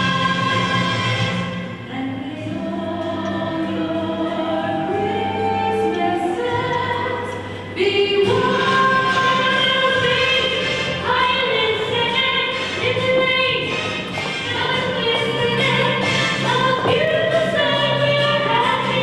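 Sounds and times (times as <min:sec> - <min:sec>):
choir singing held chords: 0:00.0 - 0:11.9.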